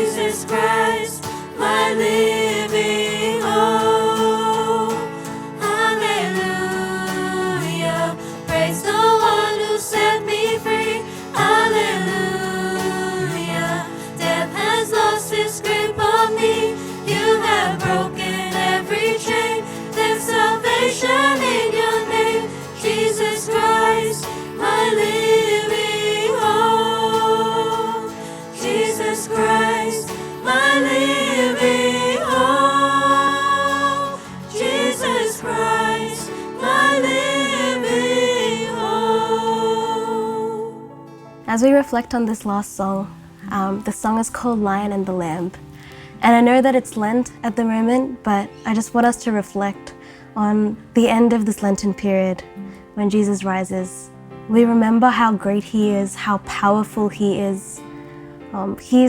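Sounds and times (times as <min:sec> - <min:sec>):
choir singing worship song: 0:00.0 - 0:41.6.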